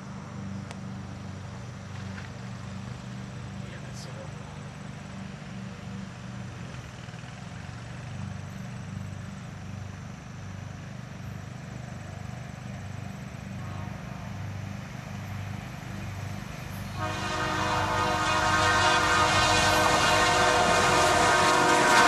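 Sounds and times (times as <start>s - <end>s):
locomotive engine rumbling: 0.0s - 22.0s
train air horn blowing: 13.5s - 14.7s, 16.8s - 22.0s.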